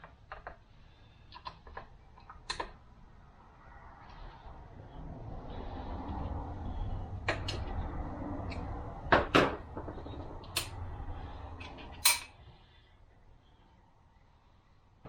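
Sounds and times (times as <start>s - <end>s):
sharp metal clank: 12.0s - 12.3s.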